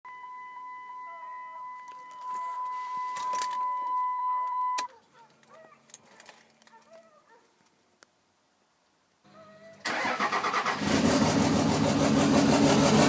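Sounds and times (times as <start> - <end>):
keys jangling: 1.9 - 3.7, 5.3 - 7.0.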